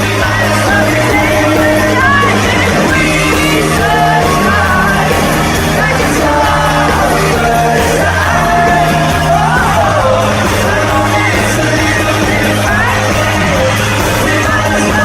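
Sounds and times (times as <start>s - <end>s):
audience yelling and cheering: 0.0s - 15.0s
band bass: 0.0s - 15.0s
men singing: 0.0s - 15.0s.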